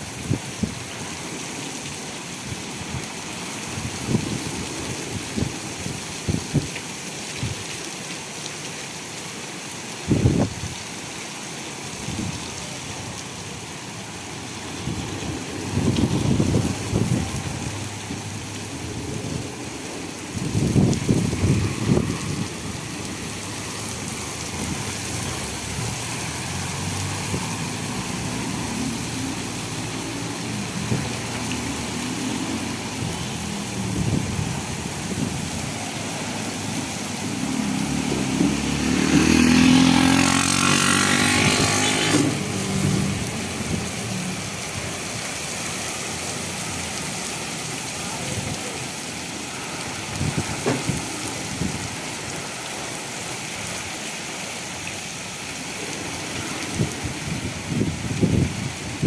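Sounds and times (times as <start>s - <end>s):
rain: 0.0s - 59.0s
tyres hissing on wet road: 0.0s - 59.0s
vehicle engine: 35.7s - 45.0s.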